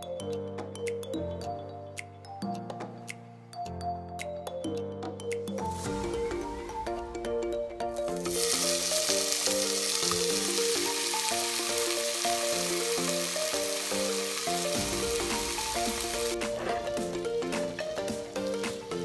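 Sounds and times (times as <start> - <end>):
background music: 0.0 - 19.0
burger patties sizzling in pan: 8.2 - 19.0.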